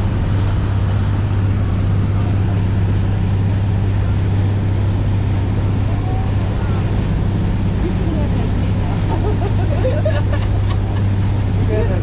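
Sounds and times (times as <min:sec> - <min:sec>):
boat engine drone: 0:00.0 - 0:12.0
rushing wind and water: 0:00.0 - 0:12.0.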